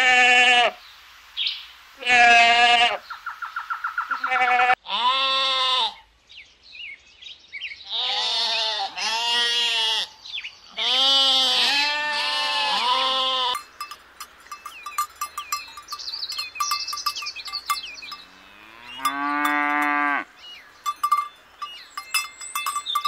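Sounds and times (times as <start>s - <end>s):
goat bleating: 2.0s - 3.0s, 4.2s - 6.0s, 8.0s - 10.1s, 10.8s - 13.7s
sheep bleating: 2.0s - 3.0s, 4.2s - 6.0s, 7.9s - 13.7s
bird chirps: 13.6s - 23.0s.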